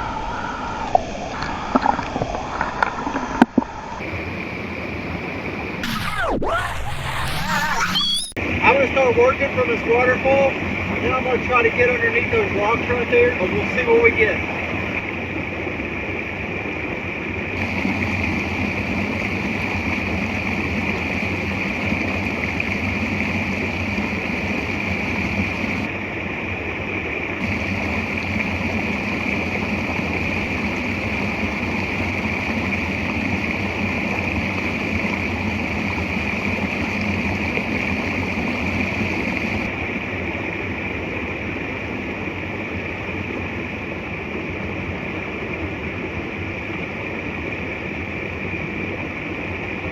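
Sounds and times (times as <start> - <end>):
water rushing from waterfall: 0.0 - 5.1, 17.6 - 49.7
higher hiss: 5.8 - 8.4, 17.6 - 25.9, 27.4 - 39.7.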